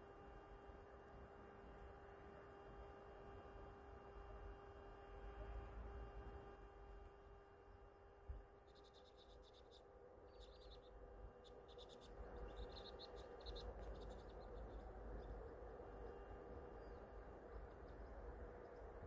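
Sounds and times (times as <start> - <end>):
low outdoor rumble: 0.0 - 19.0
small birds twittering: 8.4 - 19.0.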